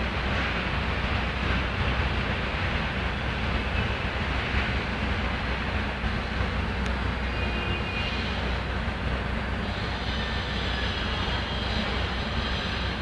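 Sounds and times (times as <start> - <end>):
hiss: 4.4 - 8.9, 9.5 - 13.0.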